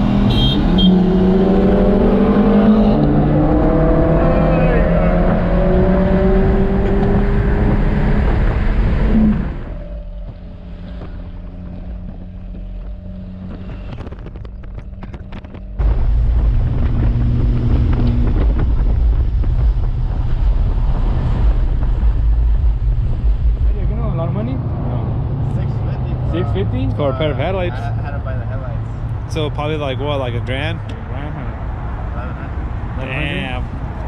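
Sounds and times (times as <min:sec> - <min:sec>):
car engine running: 0:02.9 - 0:28.2
wind buffeting microphone: 0:05.2 - 0:25.5.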